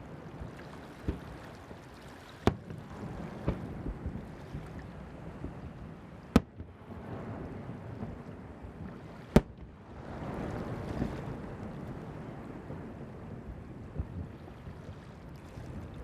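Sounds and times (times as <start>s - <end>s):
rumbling wash: 0.0s - 16.0s
fireworks bangs: 2.4s - 4.2s, 6.3s - 6.8s.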